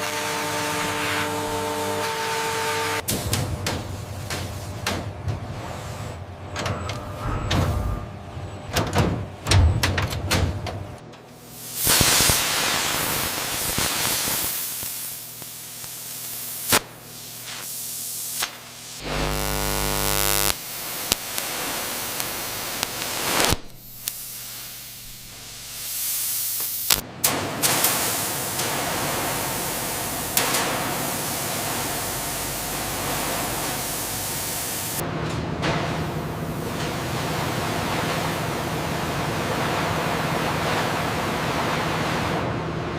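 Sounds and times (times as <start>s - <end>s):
factory machine hiss: 0.0s - 6.2s, 11.4s - 19.1s, 20.3s - 35.0s
buzzing hum: 13.2s - 27.0s.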